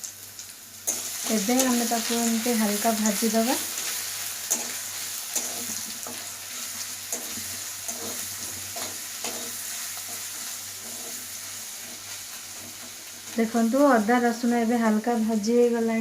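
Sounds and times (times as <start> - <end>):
garlic sizzling in hot oil: 0.0 - 16.0
spatula scraping pan: 0.9 - 13.4.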